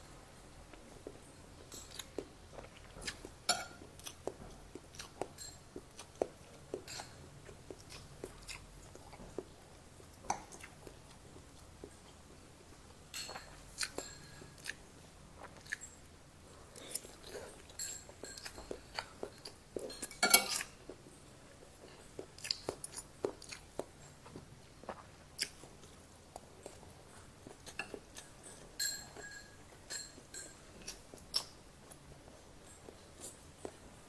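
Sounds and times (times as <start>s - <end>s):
chewing and lip-smacking: 0.7s - 34.0s
cutlery scraping on a ceramic plate: 19.9s - 20.7s.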